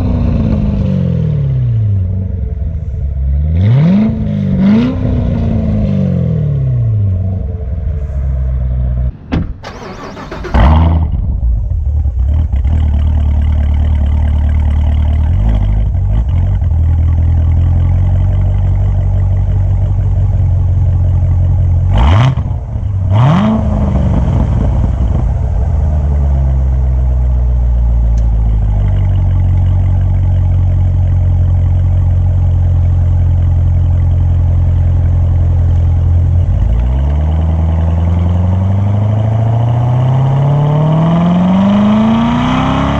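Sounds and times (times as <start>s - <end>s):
car exhaust drone: 0.0s - 42.9s
engine throttle blips: 0.0s - 42.9s
exhaust cracks: 1.9s - 38.8s.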